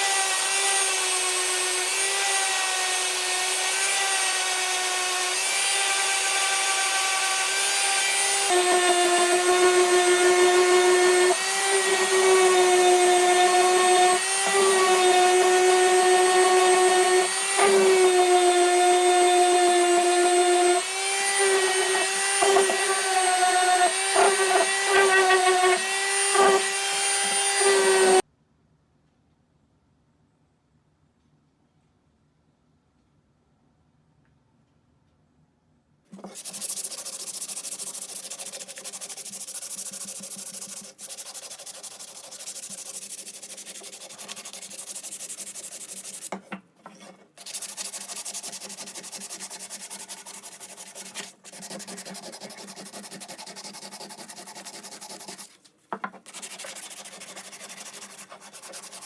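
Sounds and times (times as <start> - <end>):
power tool motor whining: 5.8 - 28.2.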